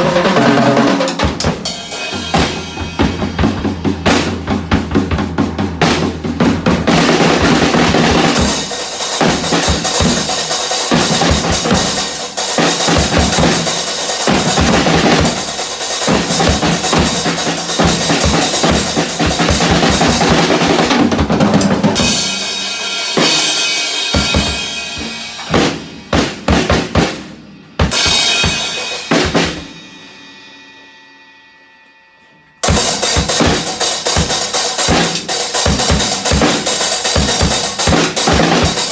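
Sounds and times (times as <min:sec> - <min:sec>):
drum kit played hard: 0:00.0 - 0:31.0, 0:32.6 - 0:38.9
cymbal ringing: 0:01.6 - 0:03.6, 0:29.7 - 0:34.0.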